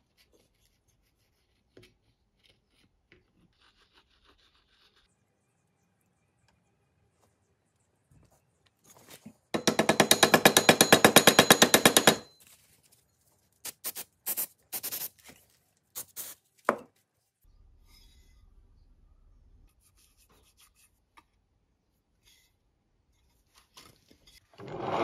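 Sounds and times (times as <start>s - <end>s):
scrapes and knocks: 23.5s - 25.0s.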